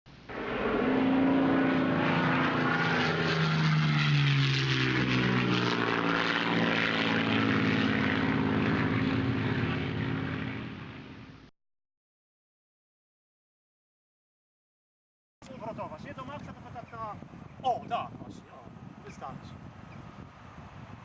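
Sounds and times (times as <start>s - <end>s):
model plane motor whine: 0.3s - 10.9s.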